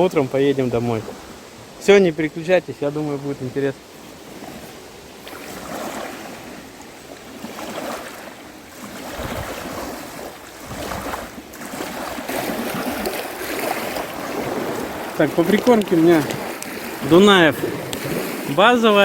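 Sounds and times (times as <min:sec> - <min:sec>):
small waves lapping at shore: 0:00.0 - 0:19.0
wind rumbling on microphone: 0:08.8 - 0:19.0.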